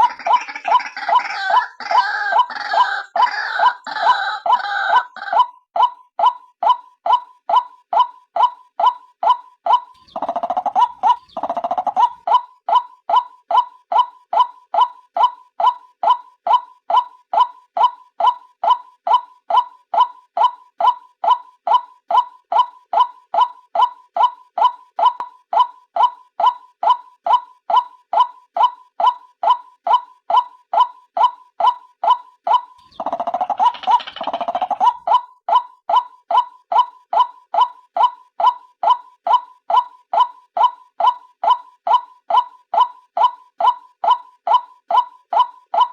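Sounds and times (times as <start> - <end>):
waterhen kwak calls: 0.0 - 5.5, 32.8 - 35.2
bird chattering rattle: 10.0 - 12.2, 32.8 - 35.0
bird short repeated calls: 32.8 - 35.1.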